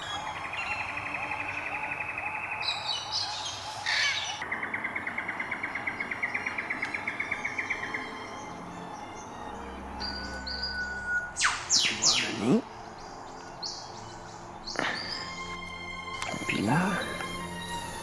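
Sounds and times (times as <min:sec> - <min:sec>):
bird trill of clicking notes: 0:06.2 - 0:12.7, 0:14.7 - 0:17.4.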